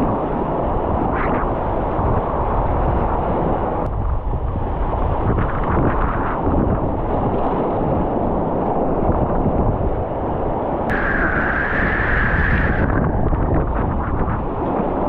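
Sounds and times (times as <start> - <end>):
wind buffeting microphone: 0.0 - 15.0
high-pitched hiss: 10.9 - 13.0.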